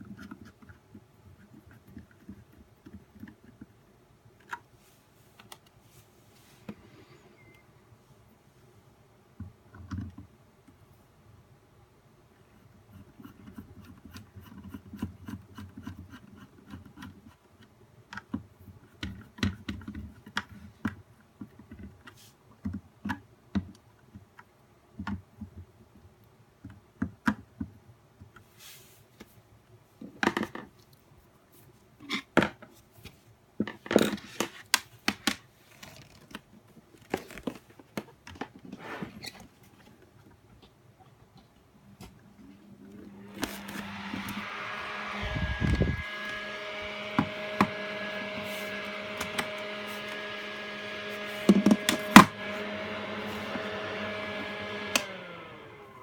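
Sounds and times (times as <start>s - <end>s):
plastic parts clicking and scraping: 33.6s - 40.7s.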